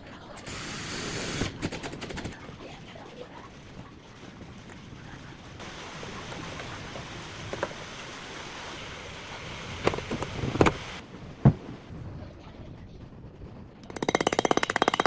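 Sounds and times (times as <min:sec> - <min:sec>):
water and wind rushing: 0:05.6 - 0:12.2.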